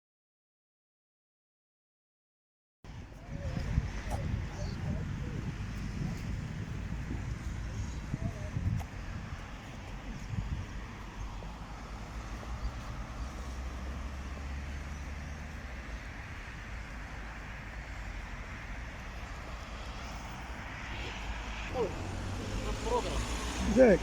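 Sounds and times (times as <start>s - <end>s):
tyre and road noise: 2.9s - 24.0s
vehicle engine rumbling: 2.9s - 24.0s.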